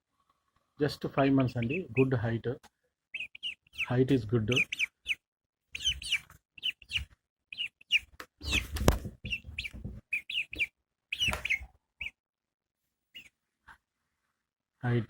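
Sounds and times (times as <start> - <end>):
bird chirping: 1.2 - 12.2, 13.1 - 13.4
knocks and rustles: 8.2 - 10.2.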